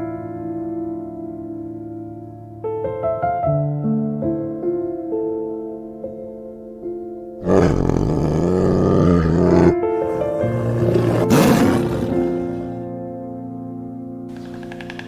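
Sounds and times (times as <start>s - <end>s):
soft piano music: 0.0s - 7.4s, 8.4s - 15.0s
tiger roaring: 7.4s - 12.9s.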